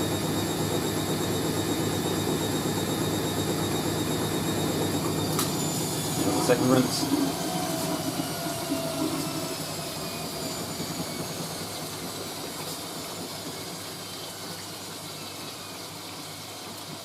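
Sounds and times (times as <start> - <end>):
washing machine motor whine: 0.0 - 17.0.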